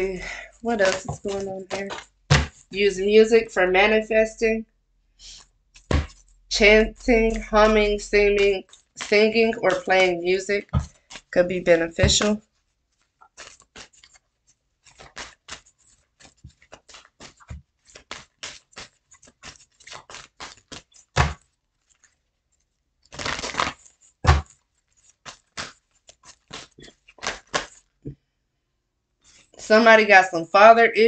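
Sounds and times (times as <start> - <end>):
cards shuffling: 0.2 - 3.2, 5.2 - 12.4, 13.0 - 14.2, 14.8 - 22.2, 23.1 - 27.9
cards tapped down: 13.3 - 14.2, 14.9 - 21.4, 23.1 - 24.6, 25.2 - 27.8.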